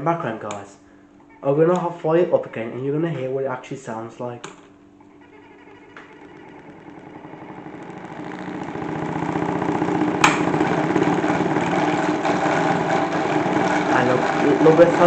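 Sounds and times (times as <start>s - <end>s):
toy motor spinning with rattle: 5.2s - 10.6s.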